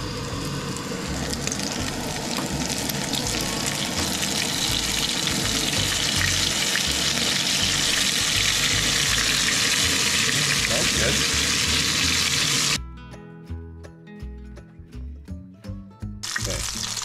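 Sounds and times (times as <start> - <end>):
food sizzling in hot oil: 0.0 - 12.8, 16.2 - 17.0.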